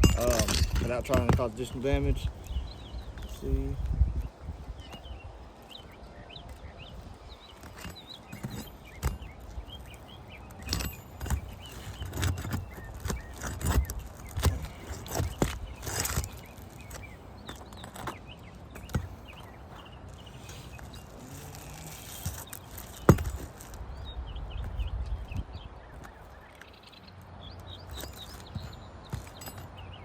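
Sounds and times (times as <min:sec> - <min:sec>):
knocks and scrapes on roof shingle: 0:00.0 - 0:03.9, 0:07.4 - 0:26.5
small birds chirping: 0:00.0 - 0:30.0.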